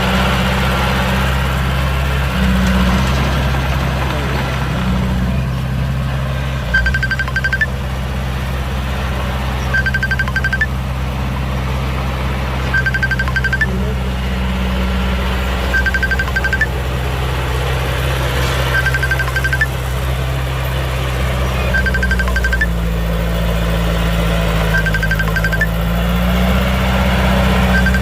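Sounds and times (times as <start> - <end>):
heavy engine running: 0.0 - 28.0
reversing alarm beeps: 6.7 - 7.7, 9.7 - 10.7, 12.7 - 13.8, 15.7 - 16.7, 18.7 - 19.8, 21.6 - 22.8, 24.7 - 25.8, 27.7 - 28.0.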